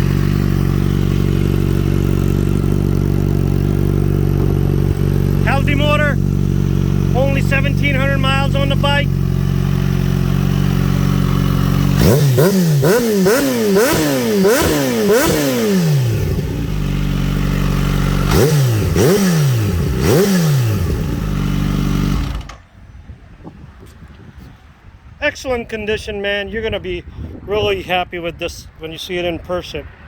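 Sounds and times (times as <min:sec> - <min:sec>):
motorcycle engine idling and revving: 0:00.0 - 0:22.8.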